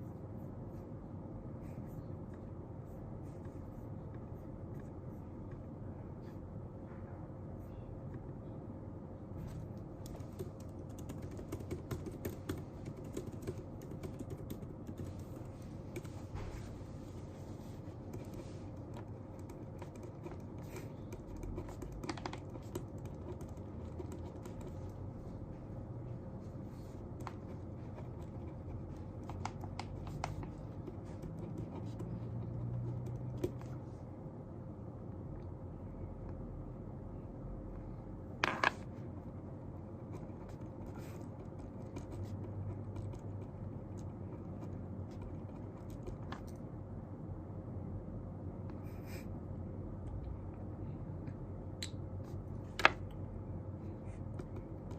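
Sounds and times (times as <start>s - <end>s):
low background hum: 0.0s - 54.9s
typing on computer keyboard: 10.0s - 16.3s, 18.0s - 25.0s, 27.2s - 33.8s, 40.1s - 46.6s.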